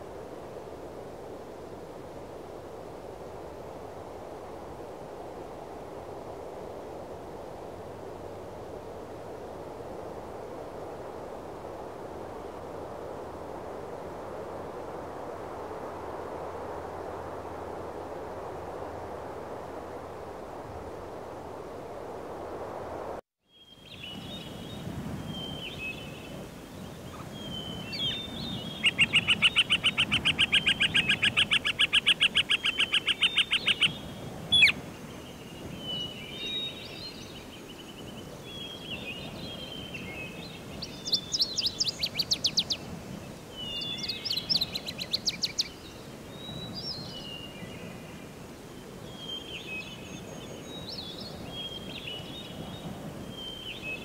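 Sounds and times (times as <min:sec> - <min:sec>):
steady background hiss: 0:00.0 - 0:54.0
bird chirps and trills: 0:26.9 - 0:42.8, 0:43.6 - 0:47.6.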